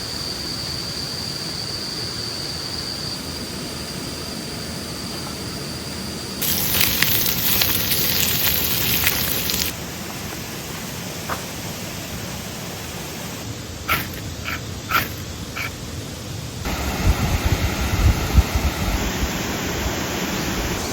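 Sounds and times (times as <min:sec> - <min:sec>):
outdoor noise: 0:00.0 - 0:20.9
campfire crackling and popping: 0:06.4 - 0:09.8.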